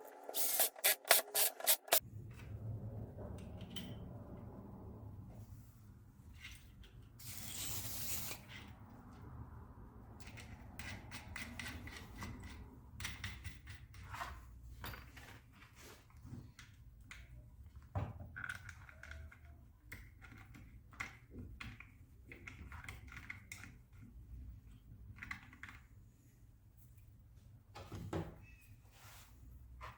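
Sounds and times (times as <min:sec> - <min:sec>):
small clicks and knocks of tools: 0:16.5 - 0:26.0.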